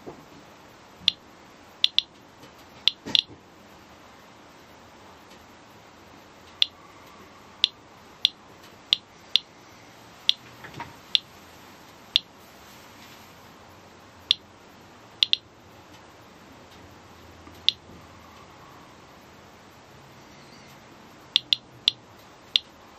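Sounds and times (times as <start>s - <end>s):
geiger counter clicking: 1.8s - 2.2s, 2.8s - 3.3s, 6.5s - 6.8s, 7.6s - 9.5s, 15.2s - 15.5s, 17.6s - 17.8s, 21.3s - 22.8s.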